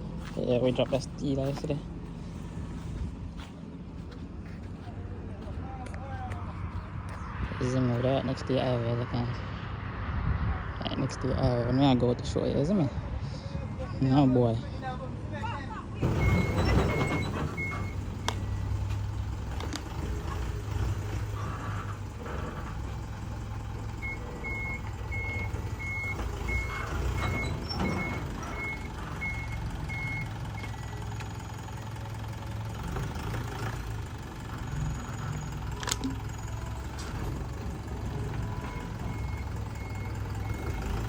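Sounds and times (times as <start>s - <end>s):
truck engine running: 0.0s - 8.9s, 13.0s - 41.0s
reversing alarm beeping: 16.0s - 18.7s, 24.0s - 31.0s, 36.4s - 41.0s.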